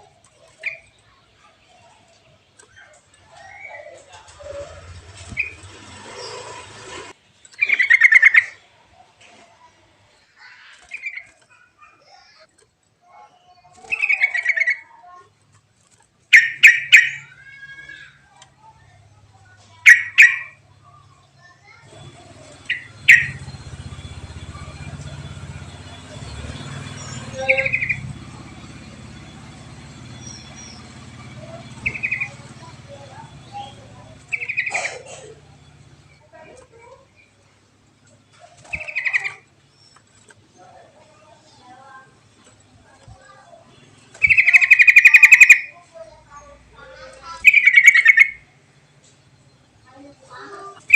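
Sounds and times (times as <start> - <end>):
soft bird chirps: 0.0 - 6.6, 7.4 - 15.7, 16.3 - 50.9
bubbling bird song: 22.1 - 26.0, 44.2 - 45.8, 47.2 - 48.5.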